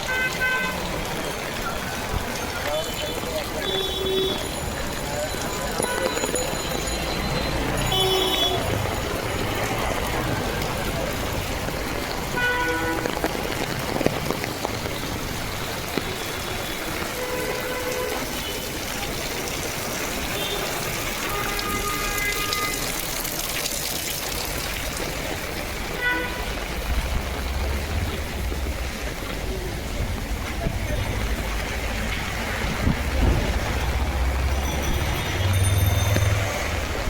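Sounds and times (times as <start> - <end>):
passing traffic rumble: 0.0 - 37.0
rain falling on street: 0.0 - 37.0
vehicle horn toots: 7.8 - 8.8, 12.4 - 13.1, 20.3 - 23.0.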